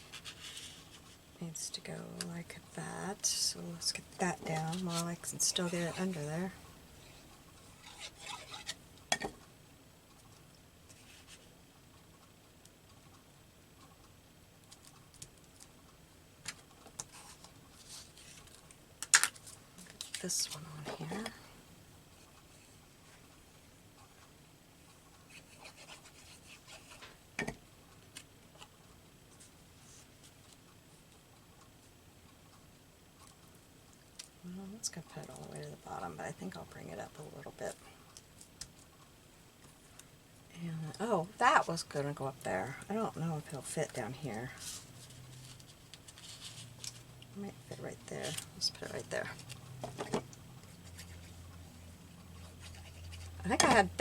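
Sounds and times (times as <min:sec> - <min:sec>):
paper rustling and rubbing: 0:00.0 - 0:01.2, 0:17.1 - 0:18.6, 0:44.6 - 0:47.1.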